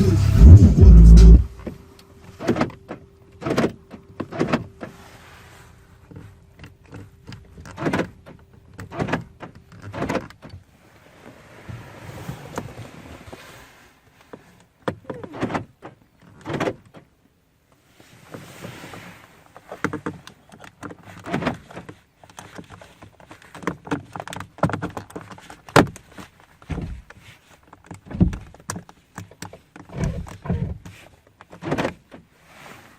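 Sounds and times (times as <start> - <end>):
car door latch clicks and clunks: 1.5 - 4.9, 6.6 - 10.6, 14.8 - 17.1, 31.5 - 32.2.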